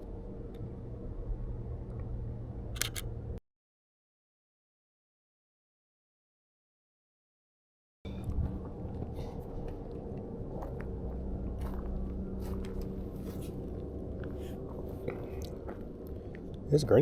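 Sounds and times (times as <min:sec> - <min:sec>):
low hum: 0:00.0 - 0:03.4, 0:08.1 - 0:17.0
clicks: 0:02.8 - 0:03.1.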